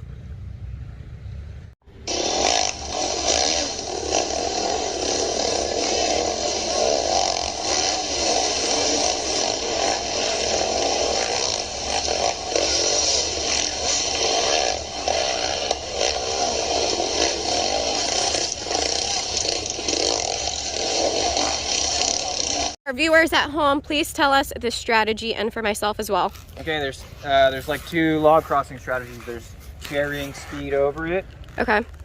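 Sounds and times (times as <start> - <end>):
low hum: 0.0 - 32.0
dirt bike engine running: 1.8 - 23.8.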